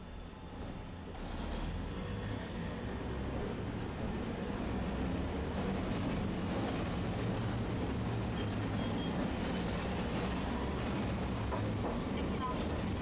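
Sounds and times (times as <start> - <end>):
streetcar rumbling on rails: 0.0 - 13.0.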